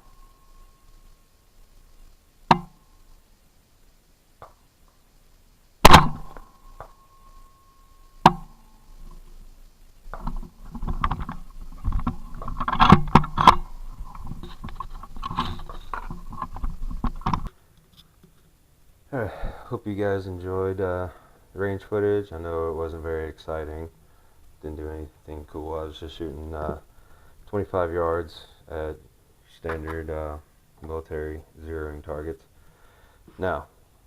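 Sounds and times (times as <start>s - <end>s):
rifle shots: 5.8s - 6.4s
rustling and knocking: 10.0s - 18.6s.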